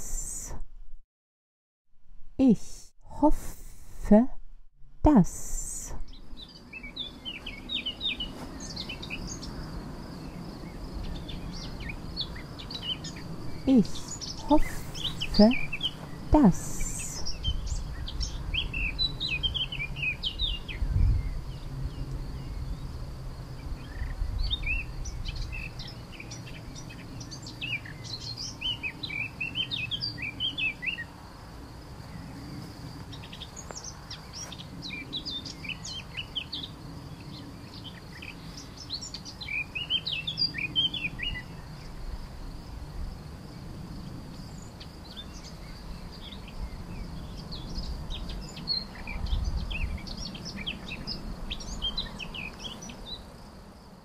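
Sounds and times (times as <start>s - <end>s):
small birds chirping and singing: 6.0s - 23.0s, 23.6s - 31.1s, 32.0s - 42.0s, 44.3s - 53.5s.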